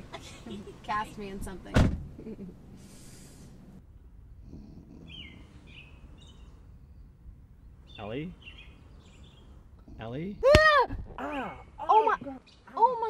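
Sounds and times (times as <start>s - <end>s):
low background noise: 0.0s - 13.0s
faint bird chirps: 4.5s - 10.4s.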